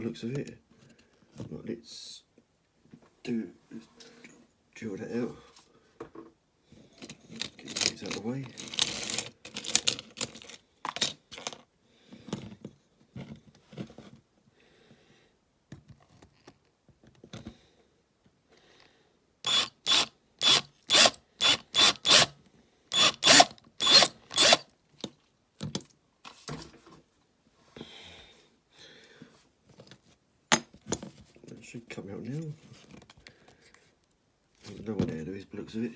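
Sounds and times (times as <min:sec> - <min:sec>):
tool grinding metal rivet: 0:19.5 - 0:22.3, 0:22.9 - 0:24.7.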